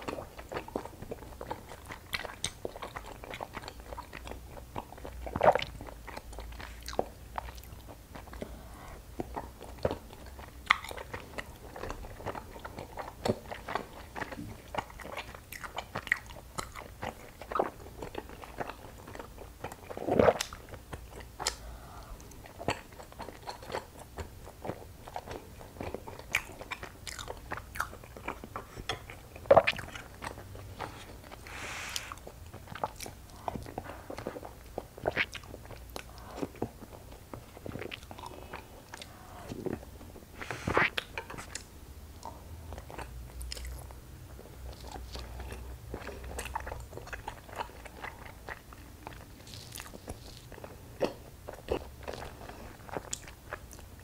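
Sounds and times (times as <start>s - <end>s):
chewing mouth clicks and smacks: 0.0s - 8.5s, 9.2s - 31.4s, 40.8s - 54.0s.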